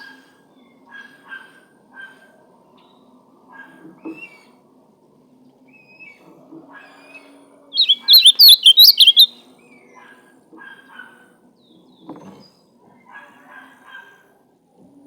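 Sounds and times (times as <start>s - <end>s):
bird warbling song: 7.8s - 9.3s
faint bird chirps: 7.8s - 9.3s.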